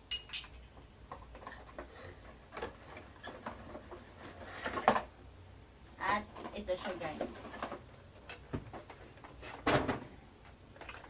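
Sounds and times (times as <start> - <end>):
ringing ceramic clinks: 0.1 - 0.6.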